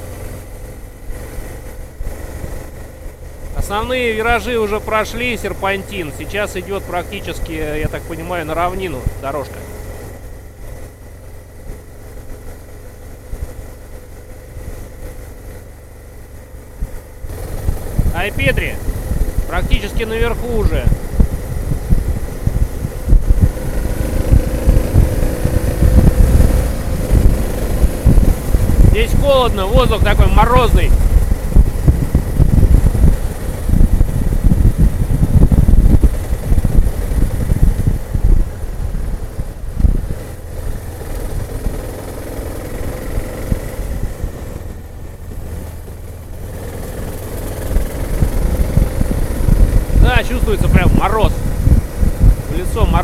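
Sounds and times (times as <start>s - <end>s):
motorcycle engine: 0.0s - 53.0s
wind buffeting microphone: 16.5s - 53.0s.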